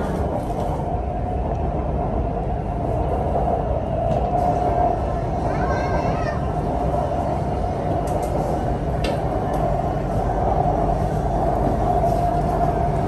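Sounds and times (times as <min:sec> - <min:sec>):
train rumble and hum: 0:00.0 - 0:13.0.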